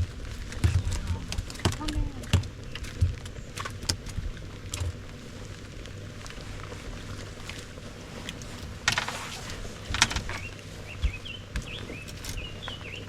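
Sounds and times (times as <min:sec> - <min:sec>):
knocks and rattles on boat: 0:00.0 - 0:05.0, 0:08.4 - 0:13.0
steady low hum: 0:00.0 - 0:13.0
bird chirping: 0:10.2 - 0:13.0.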